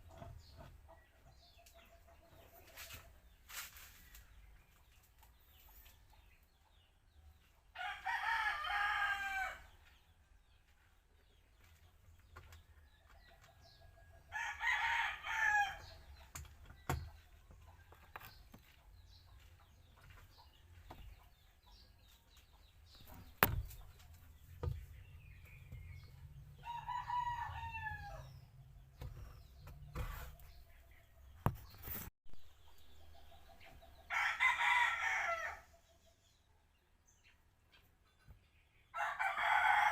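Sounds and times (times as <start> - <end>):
rooster crowing: 7.8 - 9.6, 14.3 - 15.8, 26.6 - 28.2, 34.1 - 35.6, 39.0 - 39.9.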